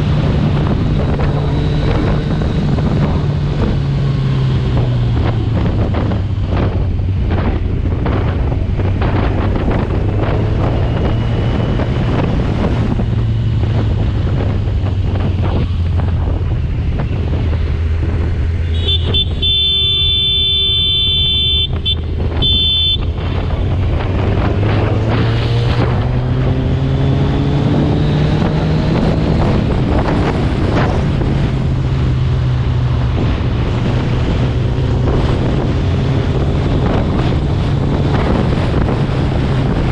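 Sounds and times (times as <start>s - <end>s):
motorcycle engine running: 0.0s - 39.9s
wind noise on microphone: 0.0s - 39.9s
vehicle horn: 18.6s - 23.4s.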